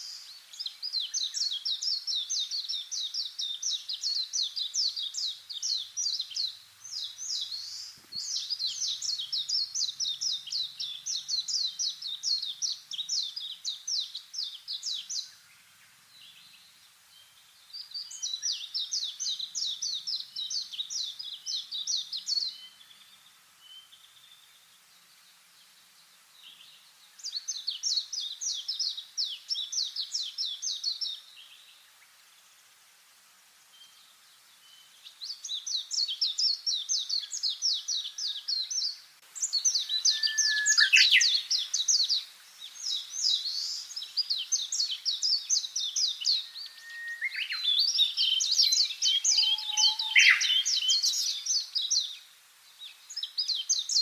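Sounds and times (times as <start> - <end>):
small bird trilling song: 35.2 - 52.2.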